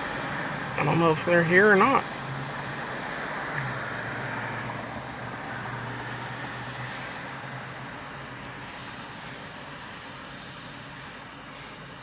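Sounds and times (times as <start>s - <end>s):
car engine idling from inside: 0.0s - 2.6s.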